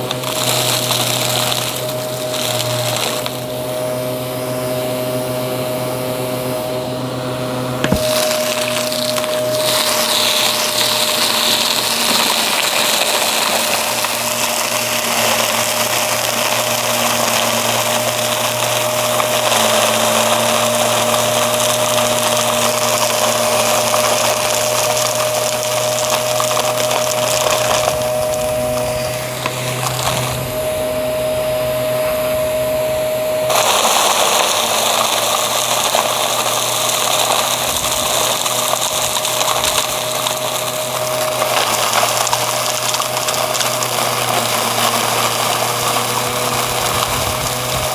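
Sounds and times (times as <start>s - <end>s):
debris crackling in vacuum: 0.0s - 47.9s
vacuum cleaner running: 0.0s - 47.9s.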